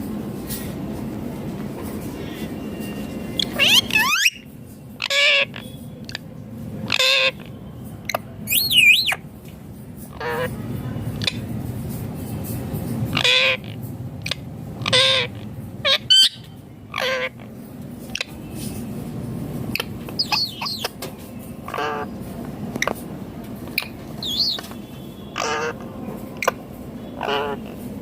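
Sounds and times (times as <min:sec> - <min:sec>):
parakeet squawking: 0:03.4 - 0:05.7, 0:06.8 - 0:07.5, 0:08.1 - 0:09.2, 0:10.1 - 0:10.5, 0:13.1 - 0:17.5, 0:18.1 - 0:18.4, 0:19.7 - 0:21.0, 0:21.6 - 0:22.1, 0:23.8 - 0:24.7, 0:25.3 - 0:26.6, 0:27.2 - 0:27.8
whistled bird chirps: 0:08.5 - 0:09.2, 0:24.2 - 0:24.7.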